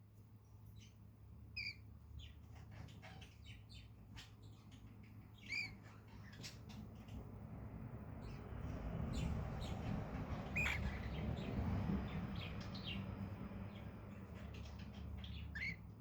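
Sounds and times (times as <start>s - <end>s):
cockatiel chirps: 1.6s - 6.7s, 10.5s - 11.1s, 14.4s - 15.8s.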